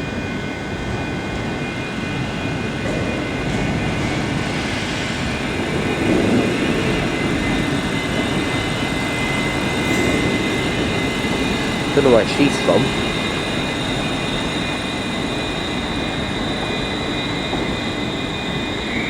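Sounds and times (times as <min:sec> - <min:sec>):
electric train rumbling: 0:00.0 - 0:19.0
thin steady whines: 0:00.0 - 0:19.0.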